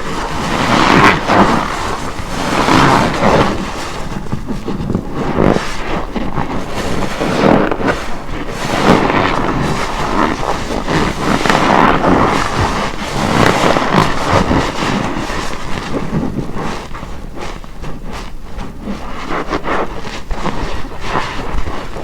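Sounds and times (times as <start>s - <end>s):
soapy sponge squelching: 0.0s - 16.7s.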